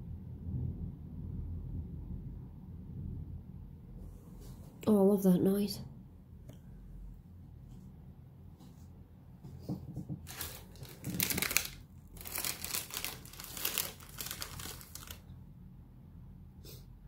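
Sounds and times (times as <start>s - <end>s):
faint low background hum: 0.0s - 17.0s
crinkling and rustling: 8.6s - 15.3s.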